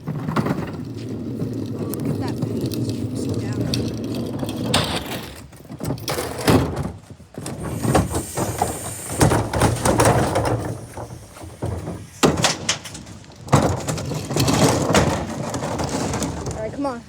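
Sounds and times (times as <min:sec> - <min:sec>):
metal bangs and clatter: 0:03.4 - 0:17.0.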